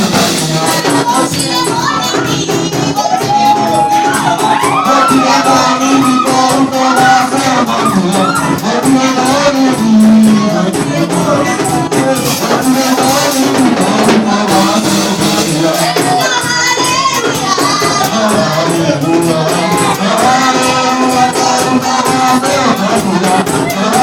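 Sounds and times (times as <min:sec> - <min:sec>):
percussion beat: 0:00.0 - 0:24.0
voices singing: 0:00.0 - 0:24.0.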